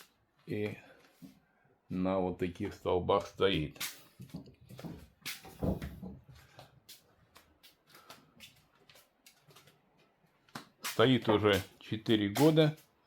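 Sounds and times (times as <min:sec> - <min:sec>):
dull thump: 0:04.8 - 0:06.3.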